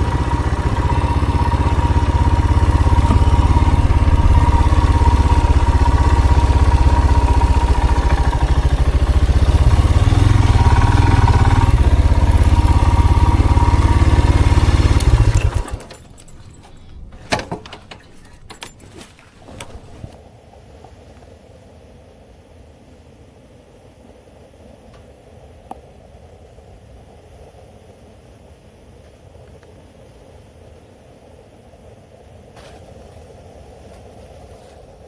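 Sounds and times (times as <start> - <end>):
engine idling: 0.0 - 20.2
sharp clicks and rattles: 0.0 - 20.2.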